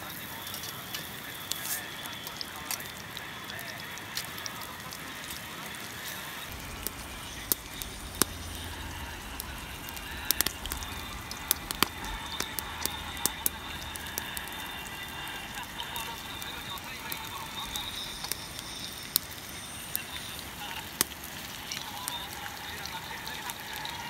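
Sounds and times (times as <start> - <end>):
campfire crackling and popping: 0.0 - 24.0
low rumble: 6.5 - 17.0.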